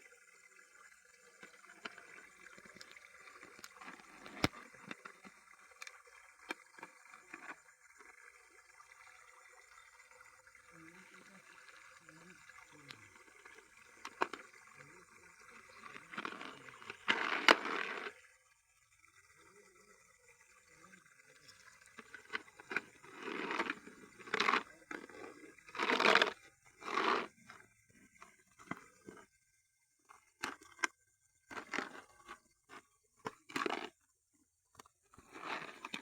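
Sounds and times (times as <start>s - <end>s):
water sloshing and splashing: 1.4s - 8.2s, 10.7s - 18.2s, 21.4s - 29.2s, 31.5s - 33.9s, 35.2s - 36.0s.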